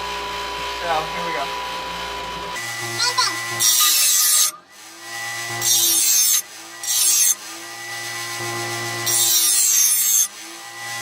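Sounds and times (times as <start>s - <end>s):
bench grinder motor hum: 0.0s - 11.0s
blade grinding on wheel: 2.6s - 11.0s.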